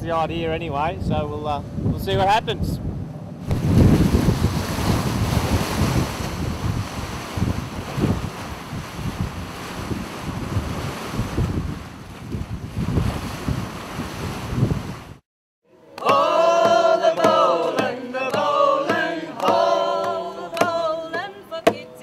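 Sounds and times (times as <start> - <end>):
wind buffeting microphone: 0.0 - 15.2
sea rushing: 3.3 - 15.2
group singing in chorus: 15.7 - 21.8
sharp knocks or claps: 16.0 - 21.8.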